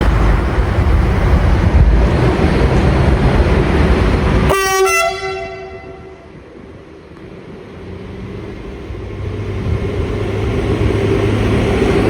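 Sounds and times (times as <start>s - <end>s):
train rumbling past: 0.0s - 12.0s
train horn: 4.5s - 6.3s.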